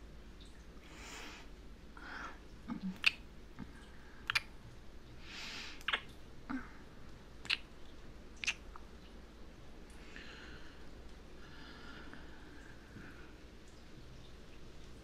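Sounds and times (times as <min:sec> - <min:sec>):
sharp mouth clicks: 0:02.7 - 0:04.5, 0:05.8 - 0:06.2, 0:07.4 - 0:07.7, 0:08.4 - 0:08.8
woman breathing softly: 0:10.0 - 0:13.5.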